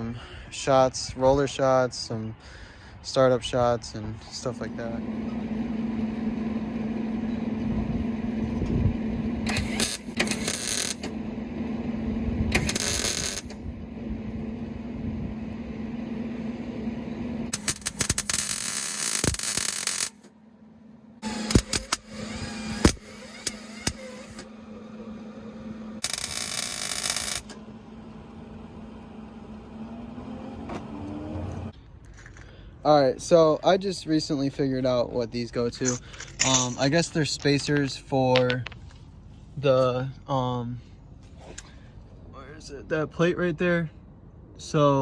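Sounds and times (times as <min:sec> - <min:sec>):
steady low hum: 0:03.6 - 0:18.4
welding crackle: 0:09.7 - 0:11.0, 0:12.6 - 0:13.5, 0:17.6 - 0:20.2, 0:26.0 - 0:27.5
quiet clatter: 0:35.8 - 0:39.1.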